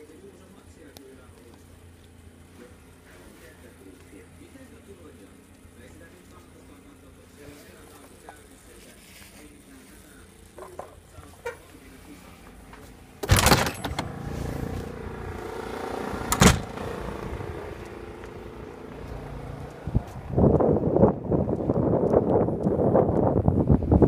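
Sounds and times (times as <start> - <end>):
helicopter electric motor whine: 13.2 - 20.0
wind on microphone: 19.8 - 24.0.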